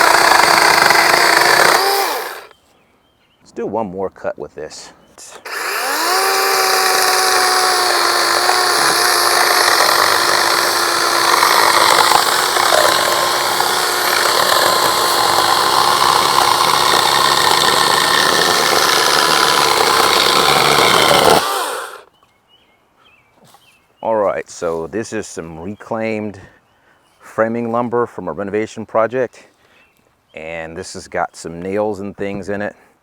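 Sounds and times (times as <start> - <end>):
chainsaw cutting through board: 0.0 - 2.5, 5.4 - 22.1.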